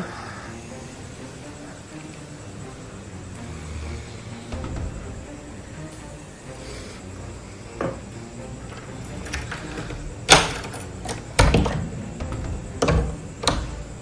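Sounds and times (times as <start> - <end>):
household objects knocking: 9.3 - 14.0.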